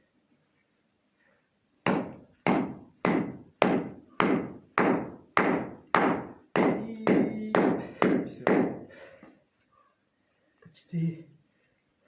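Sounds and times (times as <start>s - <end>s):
heavy knocks: 1.9s - 8.9s.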